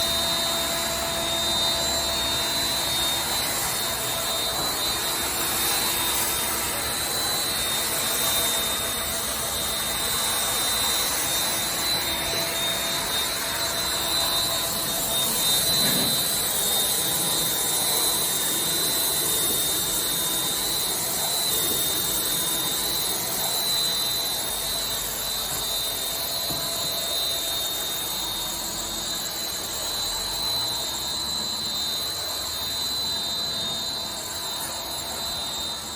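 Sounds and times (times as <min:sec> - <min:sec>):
machine rushing noise with high whine: 0:00.0 - 0:35.9.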